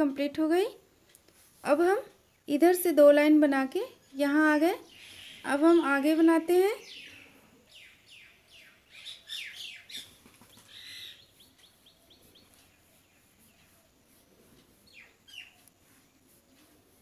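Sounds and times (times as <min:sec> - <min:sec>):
faint small bird chirps: 0:06.8 - 0:14.2, 0:14.8 - 0:16.2.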